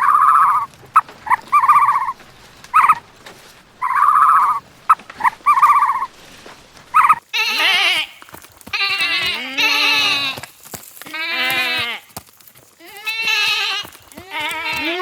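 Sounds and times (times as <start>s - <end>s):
livestock bleating: 7.3s - 10.4s, 11.0s - 12.1s, 12.8s - 15.0s.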